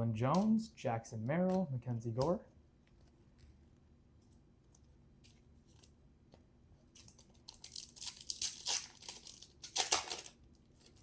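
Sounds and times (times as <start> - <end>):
foil wrapper crinkling and ripping: 7.0 - 11.0.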